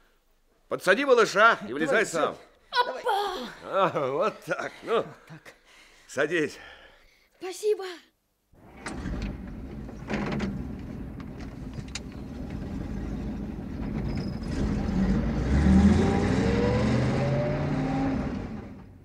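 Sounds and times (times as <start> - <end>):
lorry engine revving: 8.6 - 19.0.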